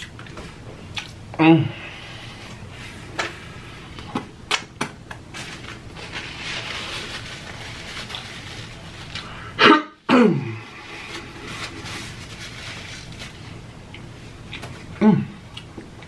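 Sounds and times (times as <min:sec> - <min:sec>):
close chewing with crunches: 0:00.0 - 0:01.3.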